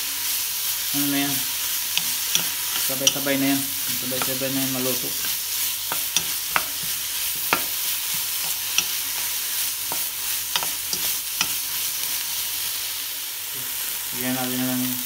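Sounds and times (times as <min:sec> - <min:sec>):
vegetables sizzling in oil: 0:00.0 - 0:15.0
spatula stirring and tossing: 0:01.4 - 0:12.6
spatula knocking against pan: 0:05.2 - 0:11.6.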